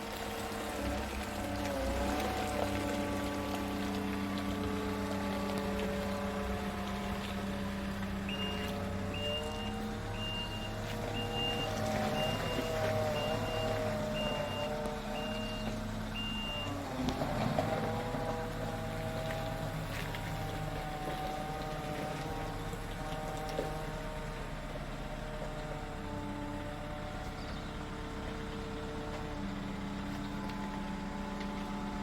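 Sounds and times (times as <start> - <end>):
truck engine running: 0.0 - 32.0
reversing alarm beeping: 8.2 - 16.8.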